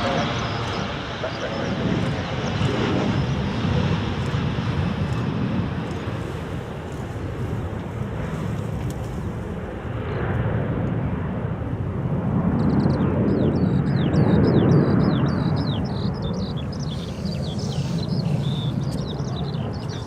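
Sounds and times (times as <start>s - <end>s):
plane engine passing: 0.0s - 20.0s
small bird chirping: 12.6s - 20.0s.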